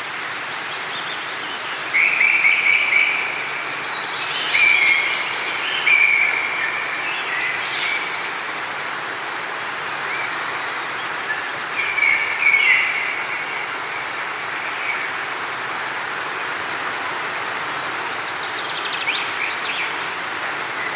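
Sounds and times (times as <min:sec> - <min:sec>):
flowing water rushing: 0:00.0 - 0:20.9
birds singing: 0:18.0 - 0:20.2.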